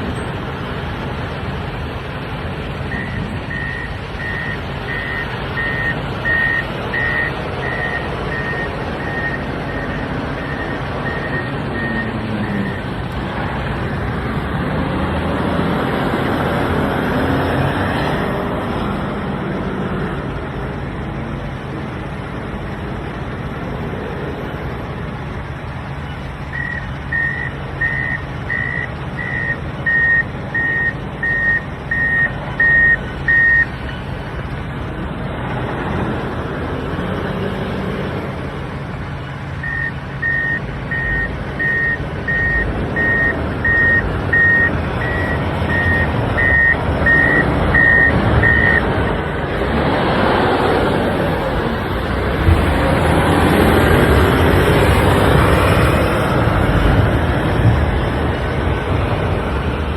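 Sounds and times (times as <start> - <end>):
diesel engine under load: 0.0 - 59.9
reverse alarm beeping: 2.9 - 12.9, 26.5 - 33.7, 39.6 - 48.9.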